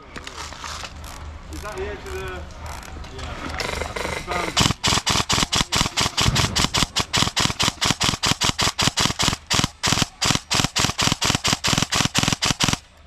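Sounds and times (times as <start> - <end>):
airsoft gun rapid shots: 3.6 - 13.0.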